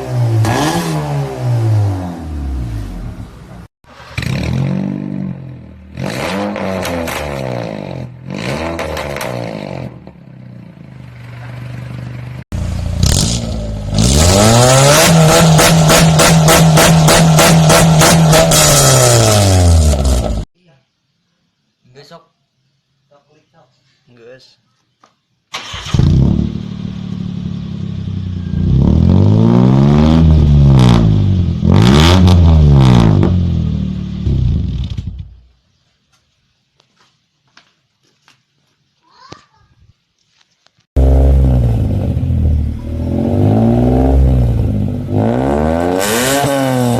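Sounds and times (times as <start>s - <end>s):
car engine starting and revving: 0.0s - 10.0s, 12.6s - 20.4s, 25.5s - 35.3s, 41.0s - 46.9s
car engine revving and idling: 10.6s - 20.4s, 41.0s - 46.9s.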